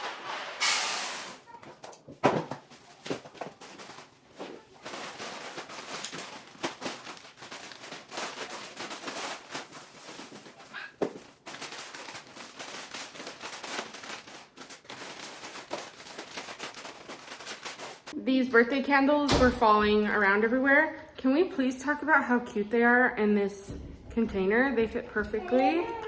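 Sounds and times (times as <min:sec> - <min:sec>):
plastic packaging rustling: 0:02.3 - 0:18.2
small items clicking and knocking: 0:04.8 - 0:09.4.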